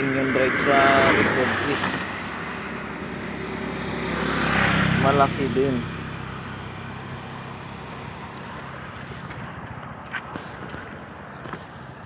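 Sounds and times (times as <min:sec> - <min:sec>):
distant traffic hum: 0:00.0 - 0:12.0.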